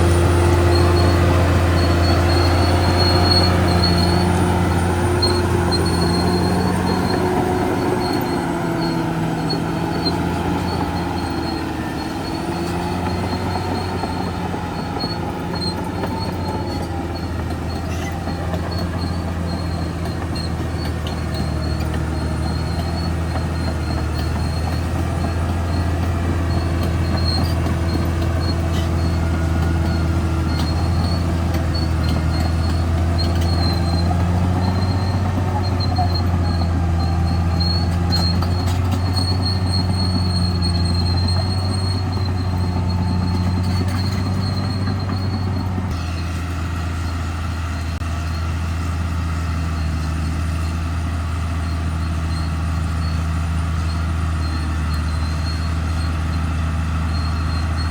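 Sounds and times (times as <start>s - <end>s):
bulldozer diesel drone: 0.0s - 57.9s
steel tracks squealing: 0.0s - 57.9s.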